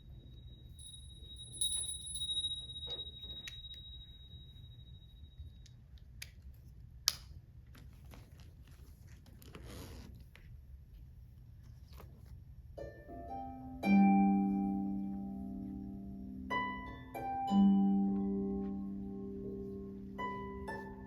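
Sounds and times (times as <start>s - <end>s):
high ringing tone: 0.0s - 5.7s
faint clicks and rustles: 7.6s - 12.6s.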